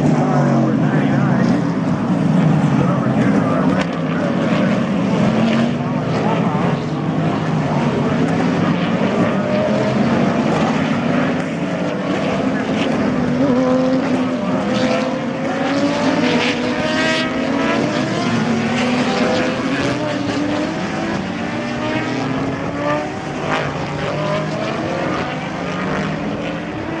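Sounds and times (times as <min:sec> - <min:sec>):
race car engines passing: 0:00.0 - 0:27.0.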